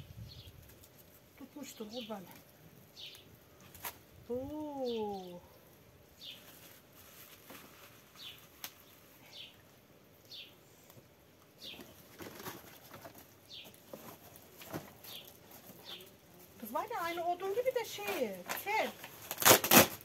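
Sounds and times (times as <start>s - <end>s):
bird chirping: 2.9s - 3.3s, 4.8s - 6.5s, 8.1s - 9.6s, 10.2s - 10.9s, 11.6s - 12.1s, 13.4s - 13.8s, 15.0s - 17.3s.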